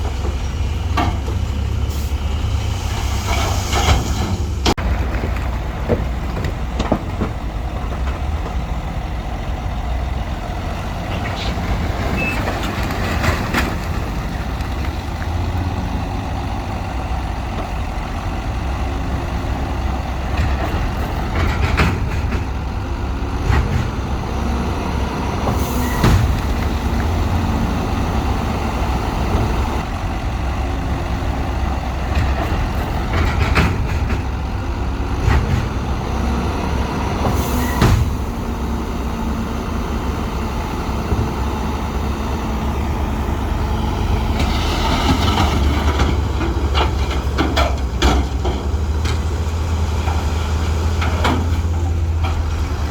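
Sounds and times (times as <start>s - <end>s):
diesel machinery engines running: 0.0s - 52.9s.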